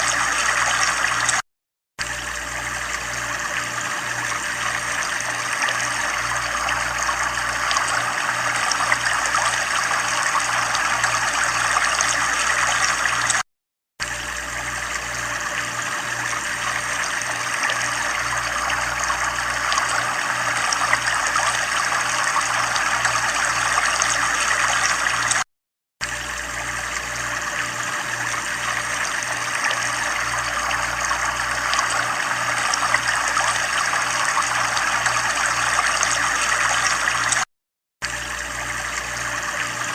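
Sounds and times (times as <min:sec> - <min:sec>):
water trickling: 0:00.0 - 0:01.4, 0:02.0 - 0:13.4, 0:14.0 - 0:25.4, 0:26.0 - 0:39.9
low pulsing hum: 0:02.0 - 0:13.4, 0:14.0 - 0:25.3, 0:26.0 - 0:37.4.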